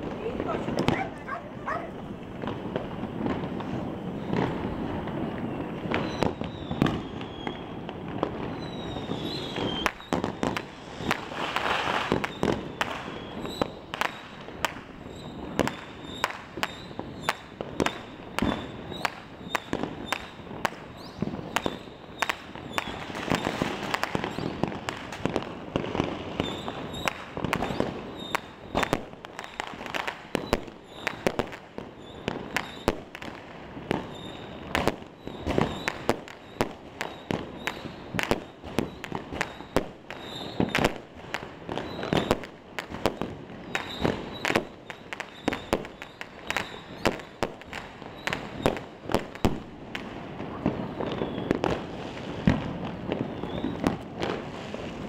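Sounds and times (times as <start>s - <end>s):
distant explosions rumbling: 0.0s - 7.0s
fireworks and firecrackers banging: 0.0s - 55.0s.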